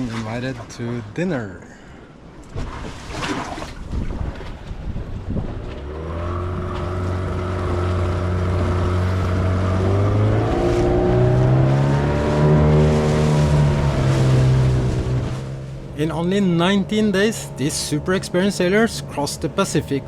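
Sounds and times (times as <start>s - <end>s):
boat motor running: 5.0s - 20.0s.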